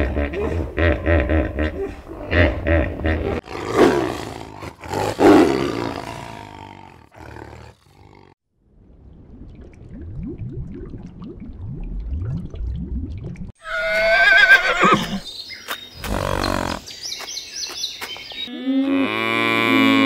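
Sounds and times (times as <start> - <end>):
animal grunts: 0.0 - 8.4
deep animal roars: 3.4 - 8.4.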